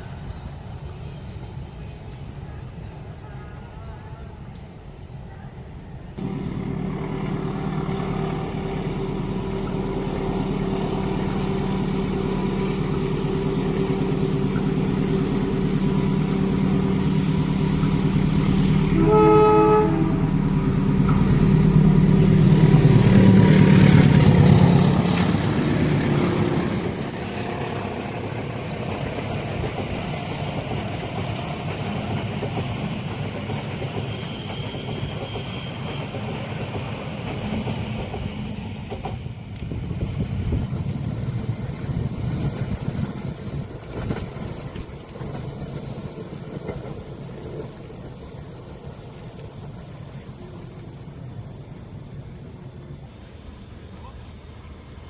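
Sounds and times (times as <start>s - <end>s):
diesel locomotive engine: 0.0s - 55.0s
train cars rolling by: 0.0s - 55.0s
train horn blast: 6.2s - 27.8s.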